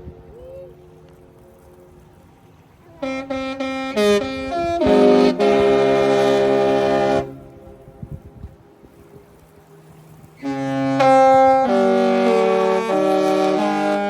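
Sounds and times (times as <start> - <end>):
ship horn playing a tune: 3.0 - 8.2, 10.4 - 14.0.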